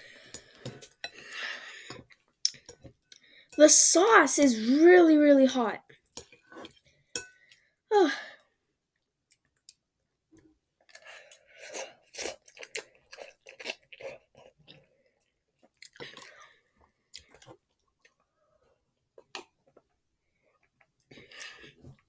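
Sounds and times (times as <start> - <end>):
chewing noodles: 10.8 - 22.0.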